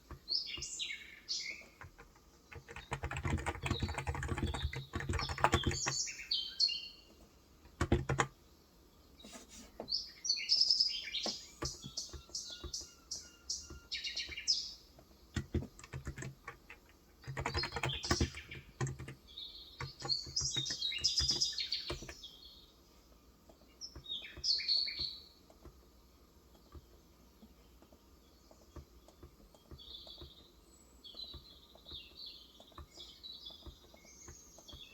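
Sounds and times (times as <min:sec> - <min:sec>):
small birds chirping: 0:00.0 - 0:34.9
keyboard typing: 0:01.4 - 0:06.2, 0:07.6 - 0:08.4, 0:11.2 - 0:19.2, 0:19.8 - 0:22.2, 0:26.5 - 0:34.9.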